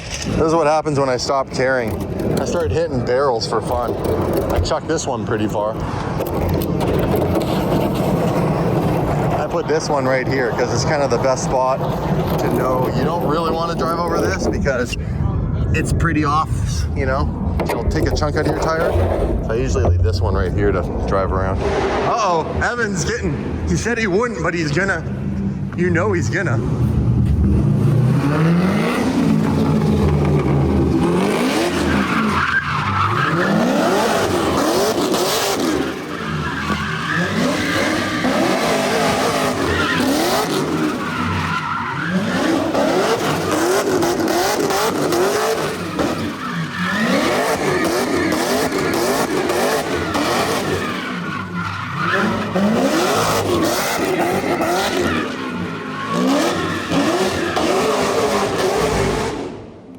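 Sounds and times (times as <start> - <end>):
car engine revving: 0.0 - 59.9
tyres squealing: 28.2 - 59.1.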